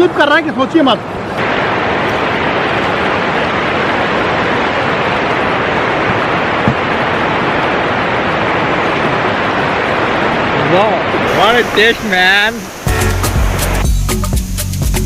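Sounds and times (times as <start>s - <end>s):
waterfall rushing over rock: 0.0s - 13.9s
low thud: 6.0s - 7.0s.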